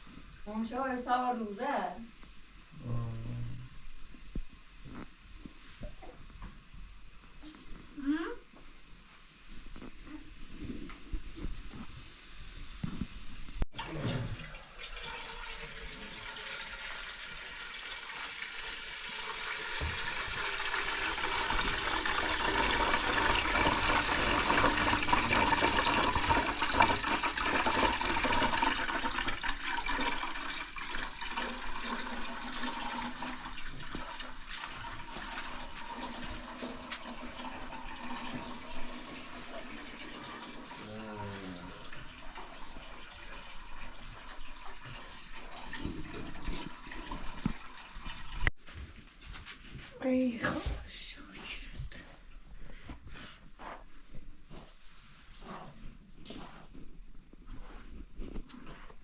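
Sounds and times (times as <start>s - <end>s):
water running from tap: 13.8s - 40.9s, 41.8s - 48.5s.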